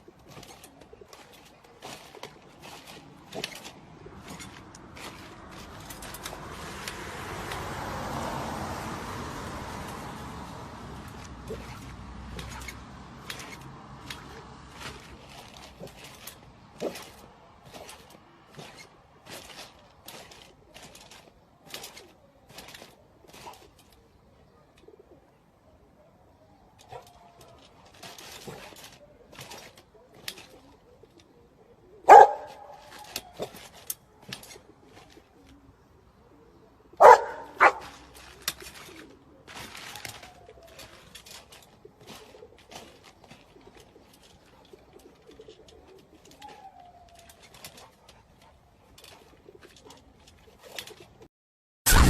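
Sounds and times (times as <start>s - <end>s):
bird cooing: 23.3s - 27.6s, 28.9s - 33.6s, 34.3s - 51.1s.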